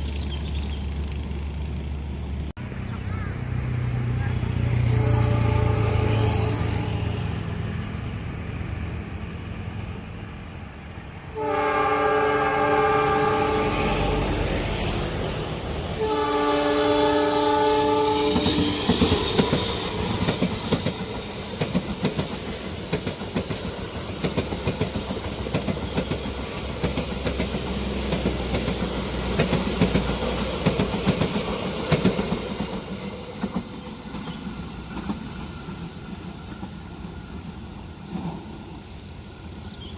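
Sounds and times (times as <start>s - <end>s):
locomotive engine rumbling: 0.0s - 21.6s
train horn blasts: 4.1s - 7.4s, 11.3s - 14.4s, 15.9s - 20.0s.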